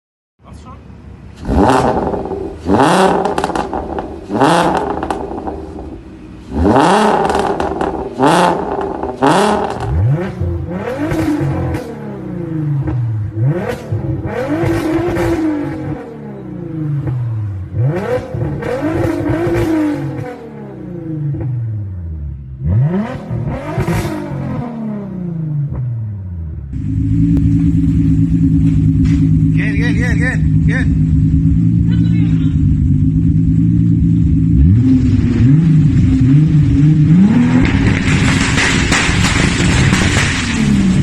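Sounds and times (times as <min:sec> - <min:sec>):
car engine revving: 0:01.0 - 0:41.0
exhaust crackles: 0:01.3 - 0:21.8, 0:22.6 - 0:41.0.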